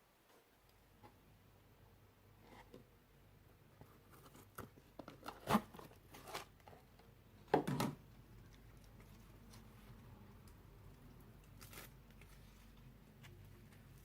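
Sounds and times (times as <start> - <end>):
hands crinkling and rustling: 8.2 - 14.0.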